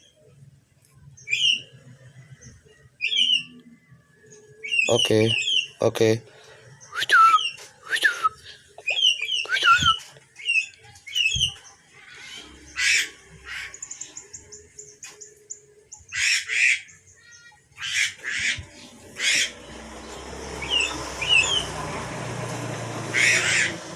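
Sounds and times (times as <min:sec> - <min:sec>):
bird chirping and squawking: 0:01.2 - 0:01.8, 0:02.4 - 0:03.6, 0:04.6 - 0:05.9, 0:08.4 - 0:21.8, 0:23.0 - 0:23.9.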